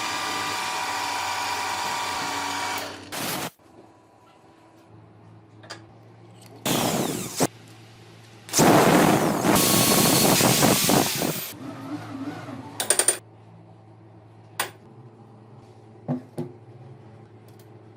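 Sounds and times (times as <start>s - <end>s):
power tool working metal: 0.0s - 3.5s, 6.7s - 7.5s.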